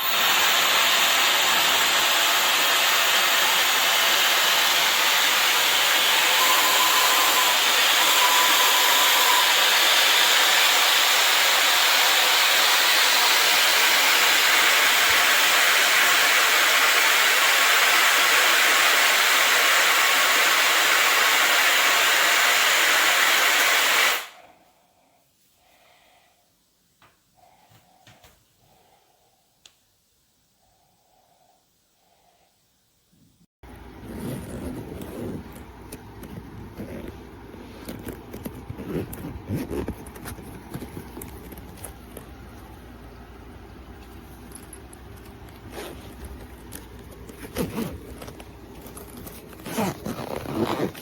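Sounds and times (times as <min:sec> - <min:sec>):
hair dryer blowing air: 0:00.0 - 0:24.5.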